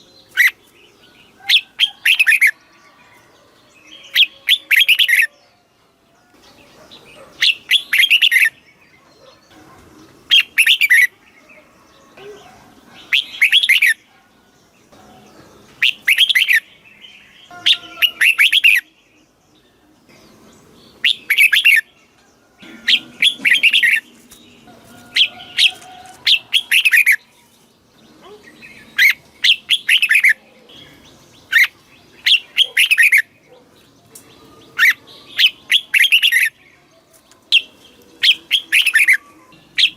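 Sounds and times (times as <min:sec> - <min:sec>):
bird singing warbled phrases: 0:00.0 - 0:39.9.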